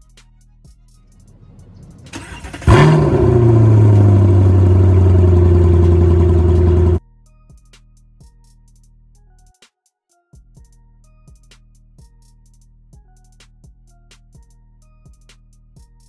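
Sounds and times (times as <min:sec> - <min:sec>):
faint background music with beat: 0:00.0 - 0:02.1, 0:05.7 - 0:16.0
car engine starting and idling: 0:01.2 - 0:07.0.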